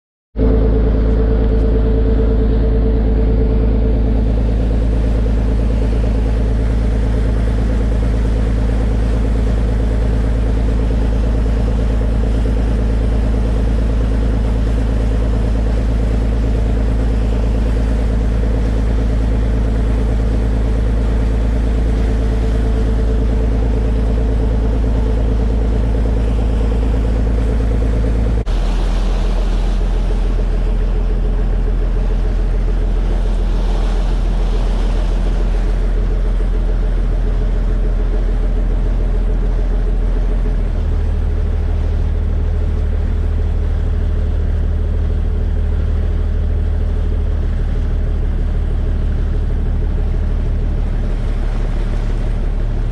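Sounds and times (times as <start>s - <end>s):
boat engine droning: 0.4s - 52.9s.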